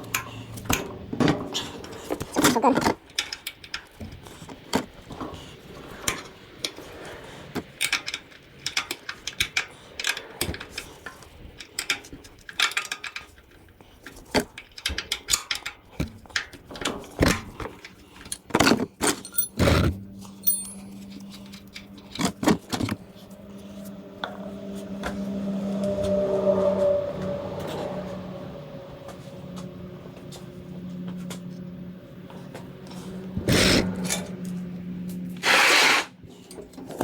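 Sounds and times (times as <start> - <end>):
metal hand tools clicking: 19.0 - 19.8, 20.4 - 21.9
steady low hum: 19.2 - 35.4.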